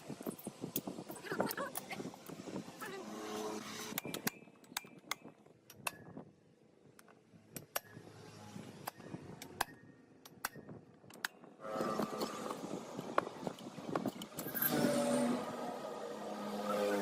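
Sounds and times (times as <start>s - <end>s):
metallic clicks of hand tools: 3.9s - 6.2s, 7.0s - 8.0s, 8.8s - 11.4s.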